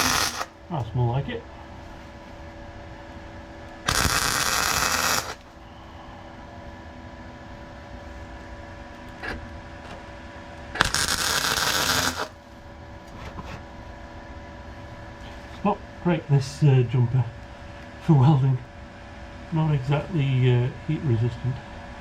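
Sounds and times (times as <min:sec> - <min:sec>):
welding crackle: 0:00.0 - 0:00.6, 0:03.8 - 0:05.5, 0:10.8 - 0:12.4
steady hum: 0:00.0 - 0:22.0.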